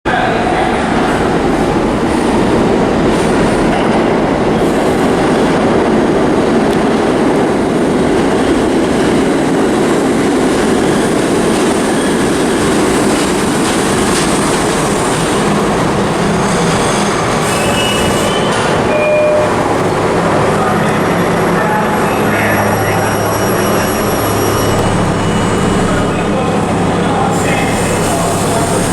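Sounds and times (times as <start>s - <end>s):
subway train rumbling on rails: 0.0s - 28.9s
high wheel squeals: 16.2s - 19.8s, 22.4s - 26.5s.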